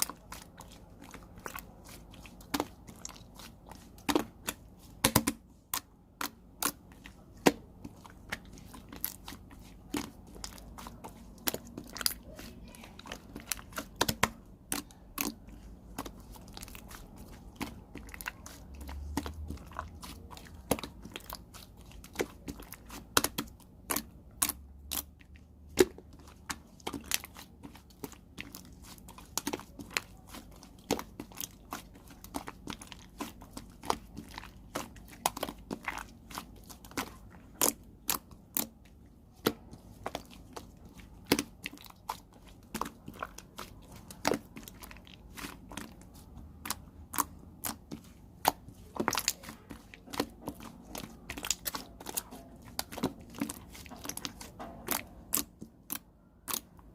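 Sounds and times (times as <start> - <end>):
slime clicking and popping: 46.6 - 56.8.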